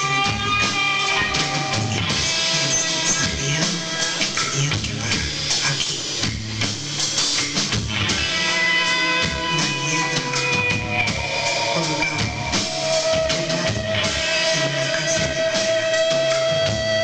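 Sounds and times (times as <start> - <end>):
sustained guitar notes: 0.0 - 4.3, 8.0 - 16.6
drum kit beat: 0.0 - 17.0
rock band playing: 0.0 - 17.0.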